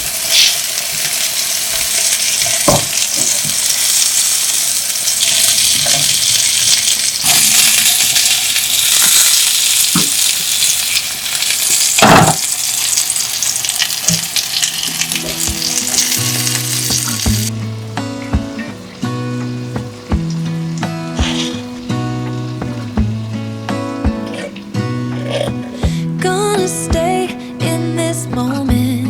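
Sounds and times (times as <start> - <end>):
food sizzling in a pan: 0.0 - 25.8
background music: 14.9 - 29.0.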